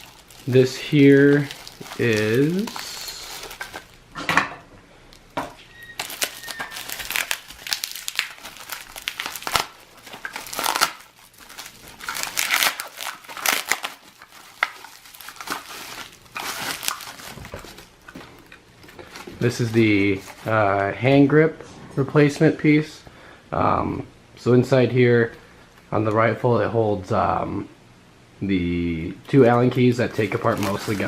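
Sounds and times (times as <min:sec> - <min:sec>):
packaging crinkling and tearing: 0:00.0 - 0:04.0, 0:05.9 - 0:20.6, 0:29.7 - 0:31.0.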